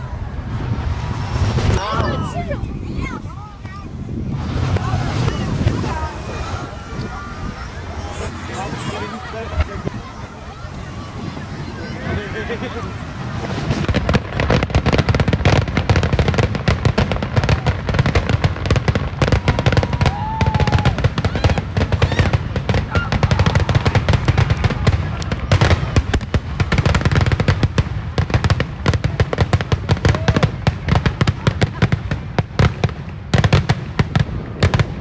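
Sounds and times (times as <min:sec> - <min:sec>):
fireworks whistles: 0:00.0 - 0:03.3, 0:04.2 - 0:27.7
fireworks booming and crackling: 0:00.0 - 0:35.0.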